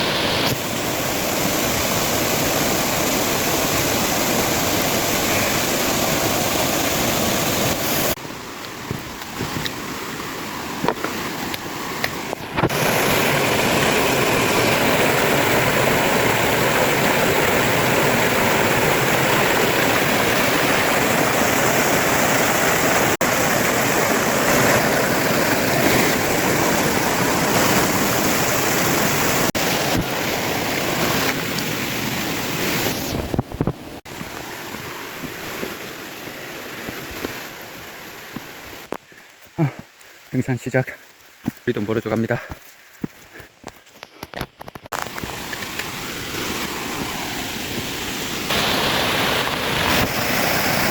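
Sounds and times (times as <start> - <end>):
waterfall rushing: 0.0 - 38.9, 44.9 - 50.9.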